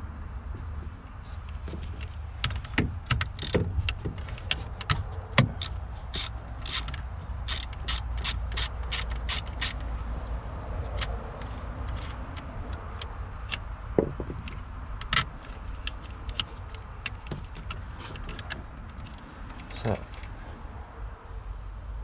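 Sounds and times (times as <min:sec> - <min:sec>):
ratchet wrench clicking: 0:03.1 - 0:03.6, 0:05.6 - 0:09.8.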